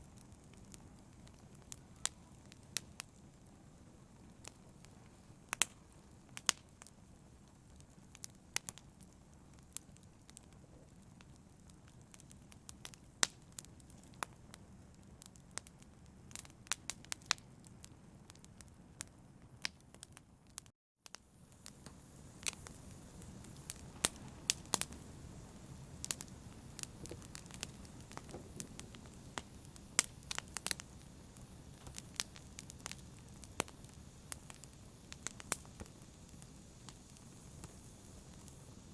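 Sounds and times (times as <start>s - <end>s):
campfire crackling: 0.0s - 38.9s.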